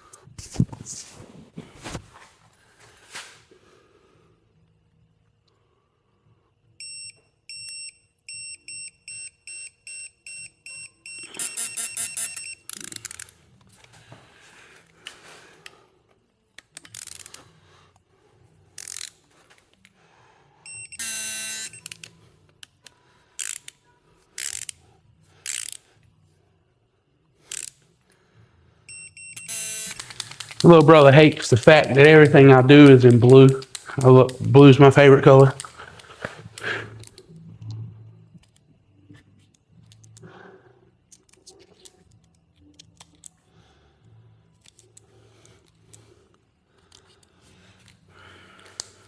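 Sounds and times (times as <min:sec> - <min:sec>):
electronic tool beeping: 0:06.8 - 0:13.0, 0:20.7 - 0:22.0, 0:28.9 - 0:32.4
rapid clicks: 0:29.9 - 0:36.4
workshop clicks and clanks: 0:29.9 - 0:36.4.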